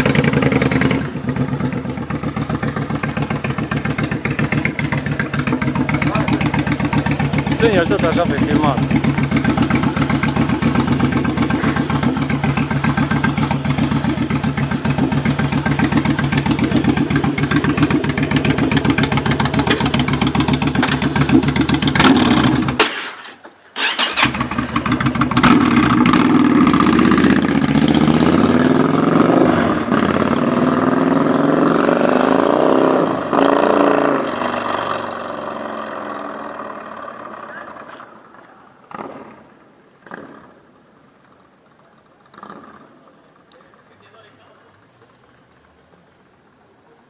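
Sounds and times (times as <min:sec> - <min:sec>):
motorcycle engine idling and revving: 0:00.0 - 0:22.8, 0:23.8 - 0:46.5.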